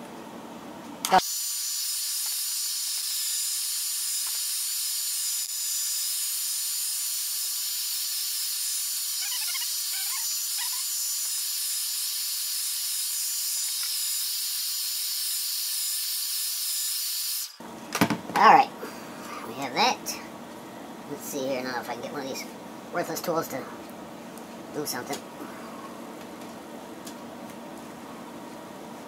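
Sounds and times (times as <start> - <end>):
hot-air blower hissing: 1.0 - 17.7.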